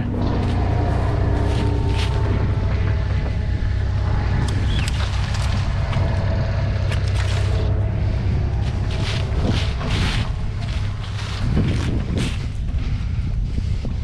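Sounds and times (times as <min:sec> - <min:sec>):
diesel machinery engine running: 0:00.0 - 0:14.0.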